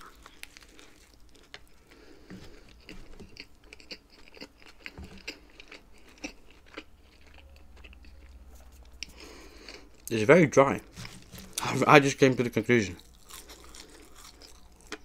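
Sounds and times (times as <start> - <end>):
chewing with wet mouth clicks: 2.7 - 10.1.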